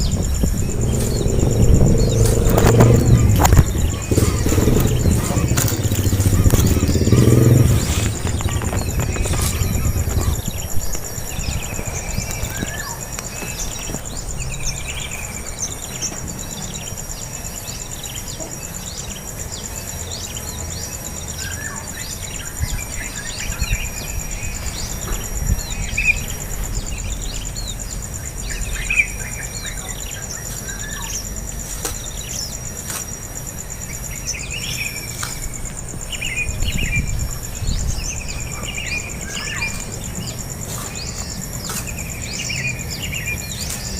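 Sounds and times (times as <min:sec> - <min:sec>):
low rumble: 0:00.0 - 0:15.9
birds chirping: 0:00.0 - 0:43.9
high-pitched insect buzz: 0:00.0 - 0:43.9.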